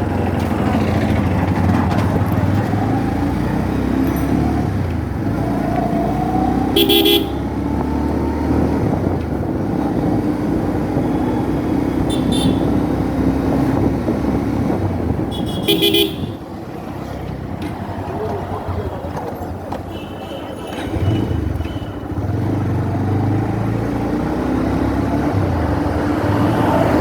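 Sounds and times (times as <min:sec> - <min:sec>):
road traffic engines: 0:00.0 - 0:27.0
vehicle horn toots: 0:06.8 - 0:07.5, 0:12.1 - 0:12.8, 0:15.3 - 0:16.4.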